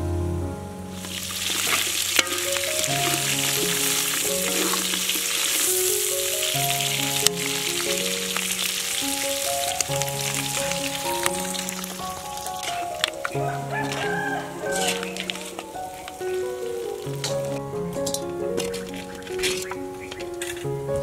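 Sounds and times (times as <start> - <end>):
melody playing: 0.0 - 20.0
chicken frying in a wok: 1.0 - 12.8, 13.4 - 17.4.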